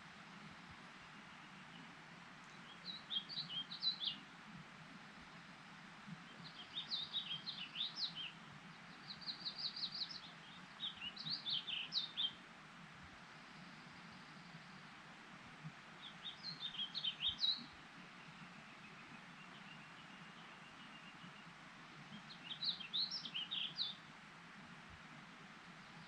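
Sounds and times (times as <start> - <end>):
light wind: 0.0 - 26.0
songbird chirping: 0.4 - 26.0.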